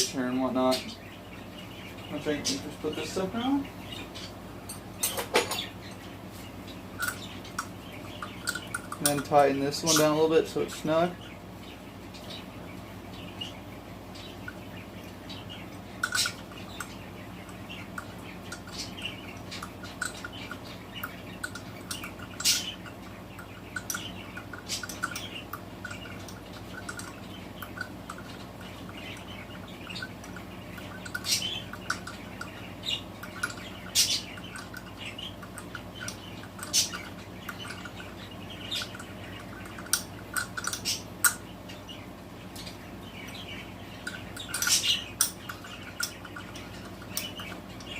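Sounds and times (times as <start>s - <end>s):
low steady hum: 0.0s - 47.9s
tools clinking on metal: 4.7s - 5.7s.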